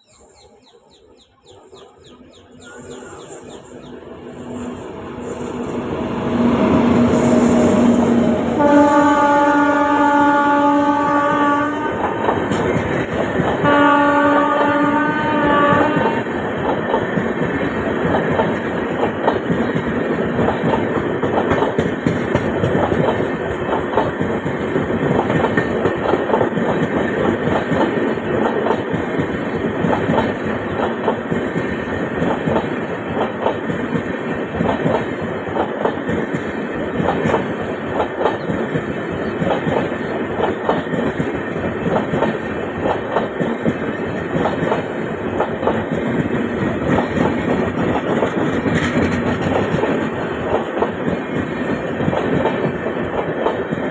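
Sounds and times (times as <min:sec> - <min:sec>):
train passing through: 0:00.0 - 0:53.9
wheels clattering over rail joints: 0:16.6 - 0:53.6.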